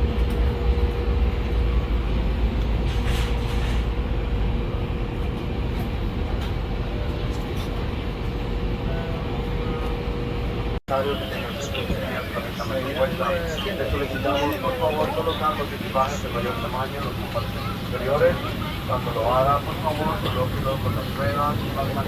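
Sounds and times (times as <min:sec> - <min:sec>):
airliner cabin rumble and hum: 0:00.0 - 0:22.0
constant mid-pitched tone: 0:10.9 - 0:21.8.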